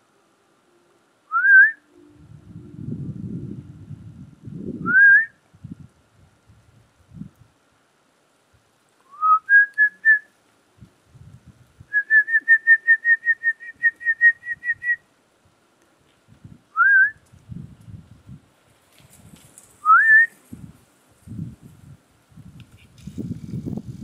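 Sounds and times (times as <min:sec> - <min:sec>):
person whistling for a dog: 0:01.3 - 0:01.8, 0:04.8 - 0:05.4, 0:09.1 - 0:10.3, 0:11.9 - 0:15.0, 0:16.8 - 0:17.2, 0:19.8 - 0:20.4.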